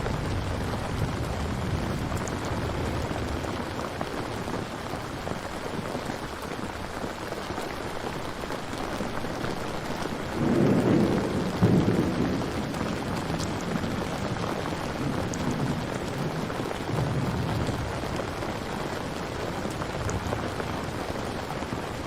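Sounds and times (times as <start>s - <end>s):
rolling thunder: 0.0s - 4.5s, 10.3s - 21.2s
heavy rain: 0.0s - 22.0s.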